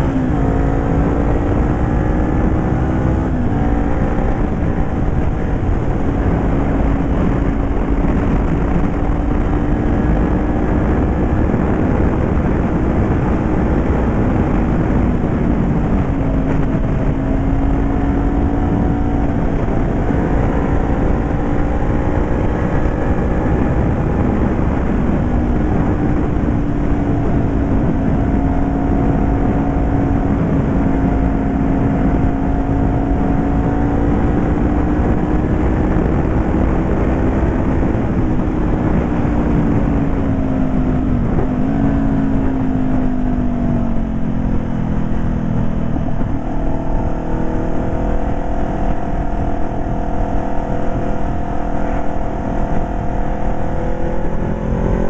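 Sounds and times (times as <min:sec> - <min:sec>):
motorcycle engine running: 0:00.0 - 0:55.0
wind noise: 0:00.0 - 0:55.0.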